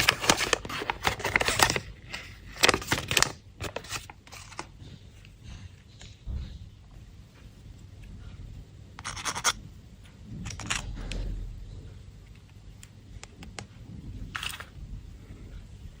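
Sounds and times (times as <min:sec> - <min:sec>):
candy wrapper crinkling: 0:00.0 - 0:04.7.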